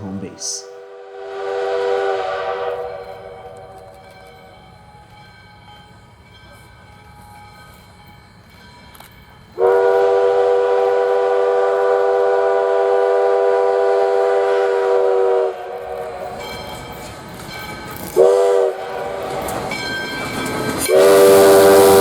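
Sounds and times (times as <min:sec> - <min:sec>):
steam locomotive whistle: 0:00.8 - 0:04.6, 0:09.6 - 0:16.8, 0:18.1 - 0:19.8, 0:20.7 - 0:22.0.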